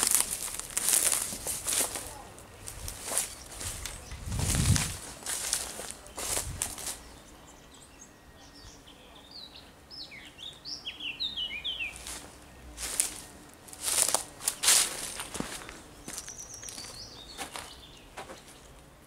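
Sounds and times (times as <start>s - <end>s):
footsteps in dry leaves: 0.0s - 7.2s, 11.7s - 18.7s
songbird chirping: 0.0s - 19.0s.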